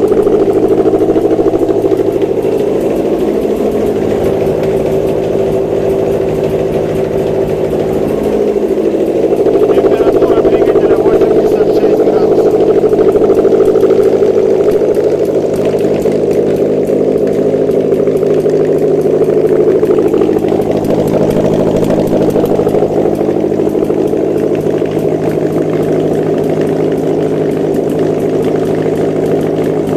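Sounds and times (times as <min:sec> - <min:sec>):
car engine idling: 0:00.0 - 0:29.9.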